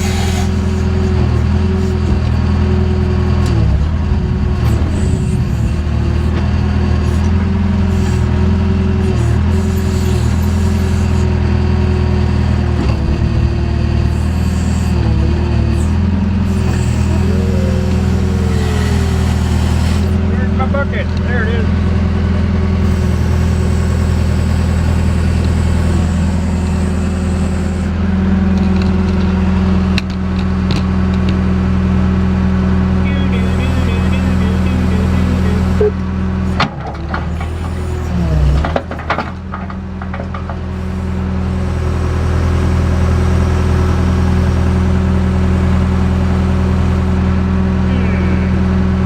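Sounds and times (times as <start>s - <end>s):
backhoe diesel engine running: 0.0s - 49.0s
thin steady whine: 33.0s - 36.6s.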